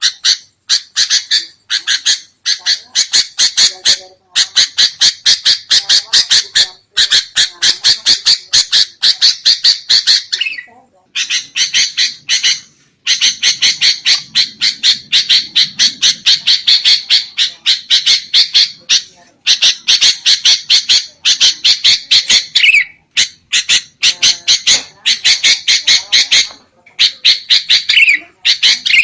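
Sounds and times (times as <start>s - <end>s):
bulbul harsh chattering call: 0.0s - 29.0s.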